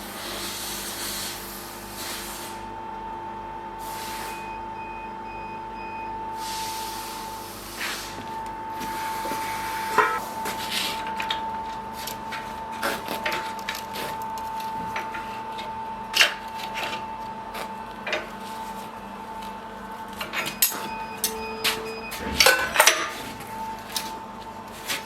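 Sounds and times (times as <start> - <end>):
high-pitched hum: 5.2 - 13.1
tools knocking and clinking: 20.5 - 23.1.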